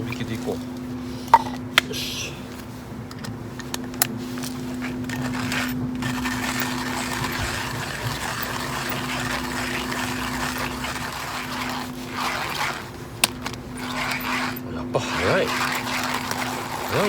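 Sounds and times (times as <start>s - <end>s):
coffee grinder grinding beans: 4.4s - 17.0s.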